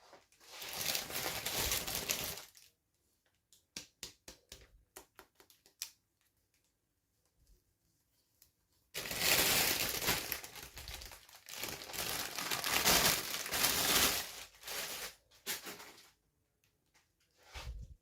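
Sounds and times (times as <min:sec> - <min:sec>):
plastic packaging crinkling: 0:00.1 - 0:02.7, 0:09.0 - 0:16.1.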